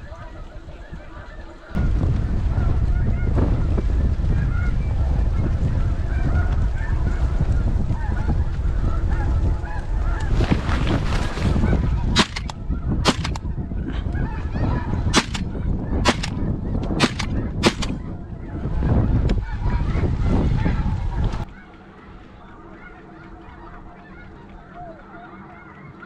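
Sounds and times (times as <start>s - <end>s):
geese honking: 0.0s - 1.8s, 2.5s - 26.0s
wind noise on microphone: 0.0s - 22.4s
sharp cracks: 12.2s - 13.5s, 15.1s - 18.1s.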